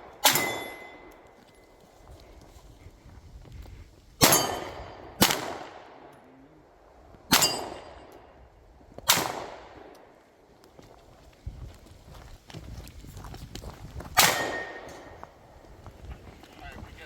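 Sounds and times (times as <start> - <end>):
metallic ringing of steel targets: 0.0 - 1.4, 4.2 - 5.1, 7.3 - 8.3, 14.2 - 15.1
gunshots: 4.2 - 6.1, 7.3 - 8.0, 9.1 - 9.9, 14.2 - 15.1.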